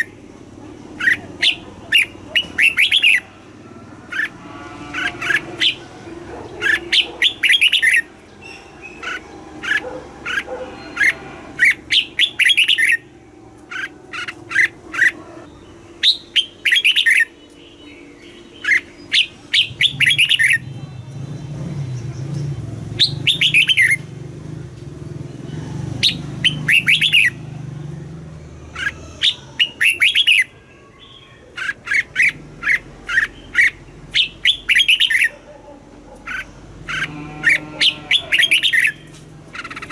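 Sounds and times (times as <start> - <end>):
bird singing whistled phrases: 23.0 - 23.9, 29.2 - 30.5.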